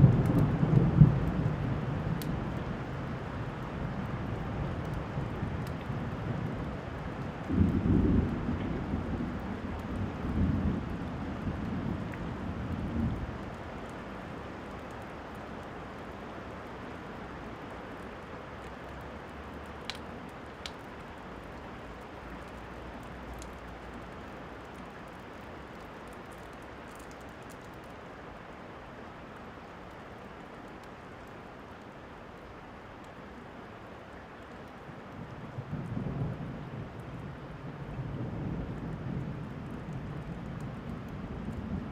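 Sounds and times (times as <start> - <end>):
thunder rumble: 0.0 - 3.6, 7.4 - 13.4
steady rain: 0.0 - 41.9
faint clicks: 18.1 - 20.9, 22.4 - 28.0.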